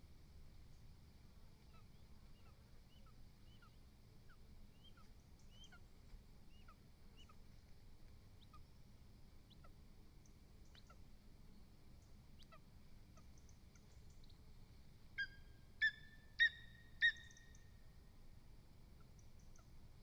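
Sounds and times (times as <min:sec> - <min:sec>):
bird chirping: 0:01.6 - 0:05.9, 0:06.5 - 0:07.4, 0:15.2 - 0:17.8.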